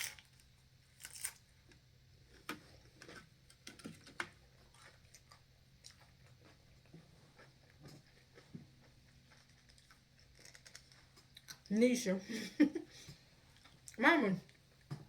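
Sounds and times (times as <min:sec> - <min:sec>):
person crunching nachos: 0:00.0 - 0:01.5, 0:04.6 - 0:11.7
low steady hum: 0:00.0 - 0:15.0.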